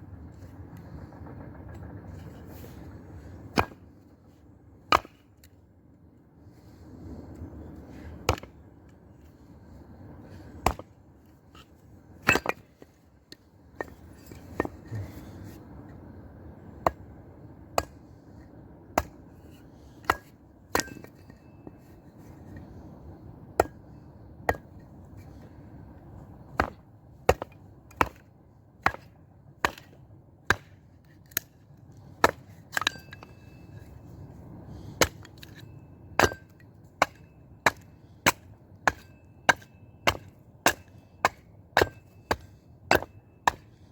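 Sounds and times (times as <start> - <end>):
axe chopping wood: 3.5 - 3.8, 4.9 - 5.2, 8.2 - 8.5, 10.6 - 10.9, 12.2 - 12.7, 19.0 - 19.2, 26.6 - 28.2, 28.8 - 31.5, 32.2 - 33.3, 36.2 - 43.7.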